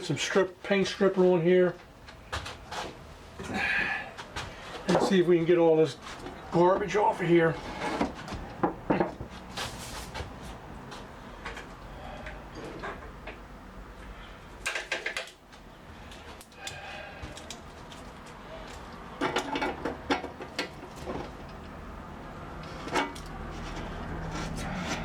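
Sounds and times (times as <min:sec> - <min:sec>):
objects clicking and knocking: 0:14.6 - 0:15.4, 0:16.2 - 0:21.8.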